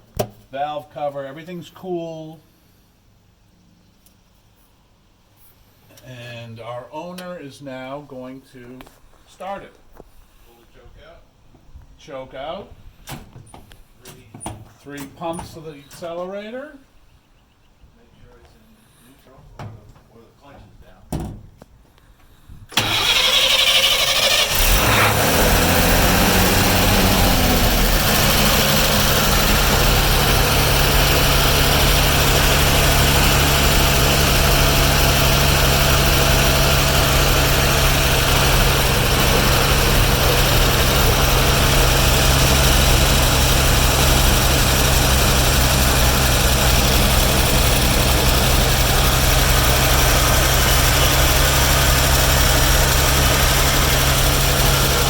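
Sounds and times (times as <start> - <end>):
engine cold starting: 22.7 - 55.0
engine fast idle: 22.8 - 55.0.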